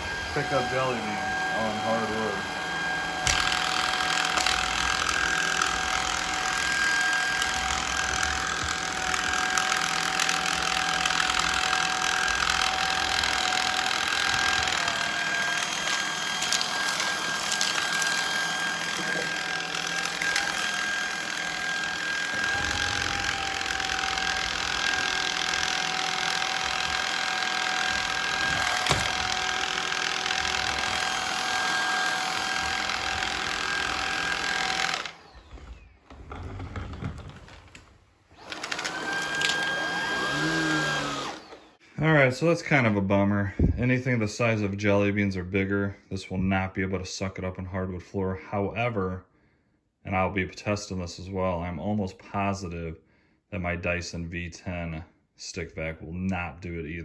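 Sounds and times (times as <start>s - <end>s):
stick vacuum motor whine: 0.0s - 41.8s.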